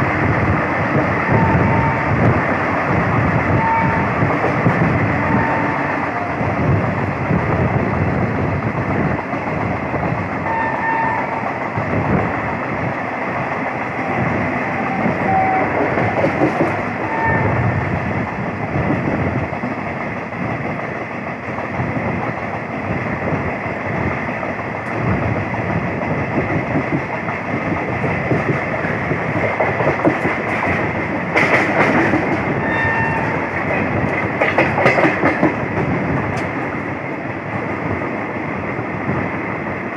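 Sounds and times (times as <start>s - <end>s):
train rumbling along track: 0.0s - 39.9s
wheels clacking over rail joints: 13.3s - 17.4s, 26.8s - 36.9s.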